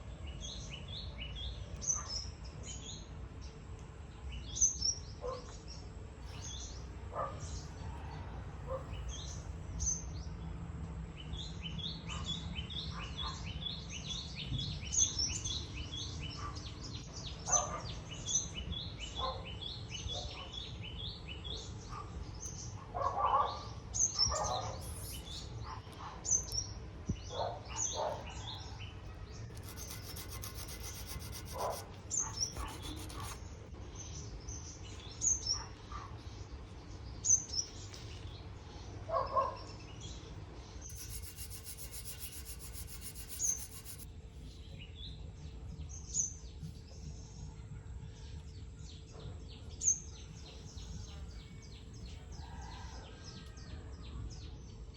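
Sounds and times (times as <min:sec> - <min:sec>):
small birds chirping: 0:23.5 - 0:38.5, 0:39.5 - 0:45.1
short rubbing or scraping sounds: 0:24.8 - 0:25.4, 0:29.5 - 0:33.4, 0:40.9 - 0:44.1.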